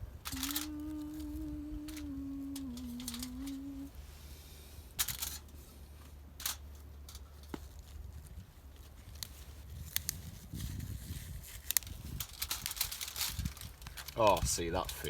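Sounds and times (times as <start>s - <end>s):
wind rumble on microphone: 0.0s - 4.1s, 7.7s - 15.0s
sharp clicks and crinkles: 0.2s - 3.7s, 5.0s - 5.6s, 6.4s - 15.0s
hand handling rustles: 0.3s - 15.0s.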